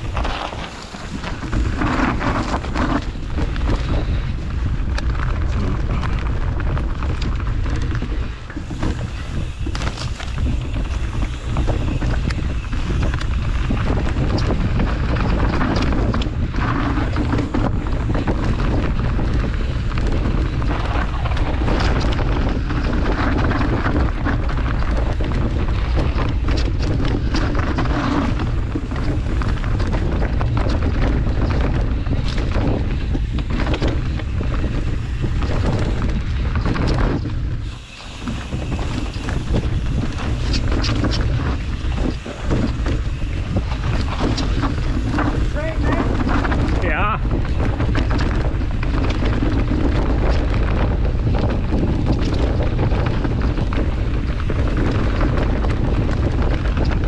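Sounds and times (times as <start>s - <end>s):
bike knocks and rattles: 0.0s - 57.0s
wind rushing over microphone: 0.0s - 57.0s.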